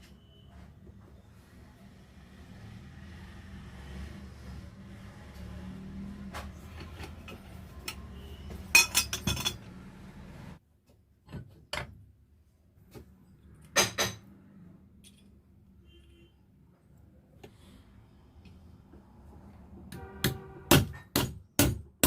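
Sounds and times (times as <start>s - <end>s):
metal tools clinking: 8.8s - 9.7s.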